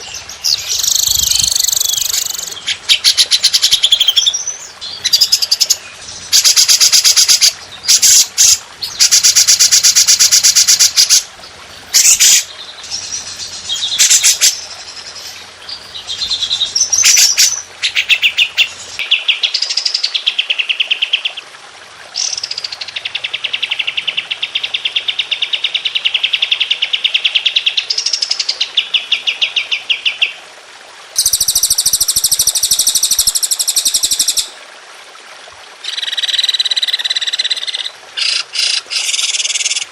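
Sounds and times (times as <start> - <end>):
songbirds singing rapid notes: 0.0 - 9.3, 10.6 - 20.0.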